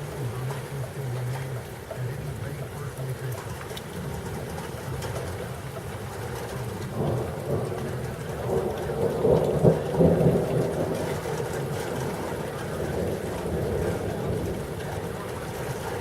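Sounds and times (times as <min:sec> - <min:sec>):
steady rain: 0:00.0 - 0:16.0
thunder rumbling: 0:03.9 - 0:16.0.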